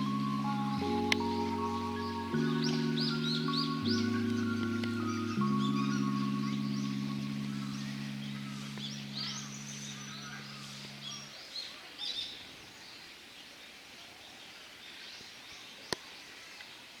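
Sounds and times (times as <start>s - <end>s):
faint outdoor background: 0.0s - 17.0s
small birds chirping: 0.0s - 17.0s.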